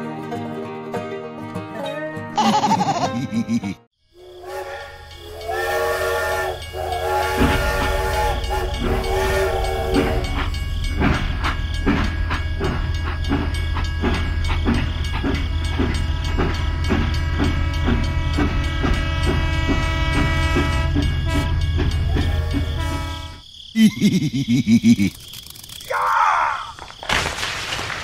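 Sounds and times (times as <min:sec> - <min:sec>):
train chugging: 0:04.1 - 0:25.2
steam train whistle: 0:04.2 - 0:10.6, 0:16.6 - 0:23.4.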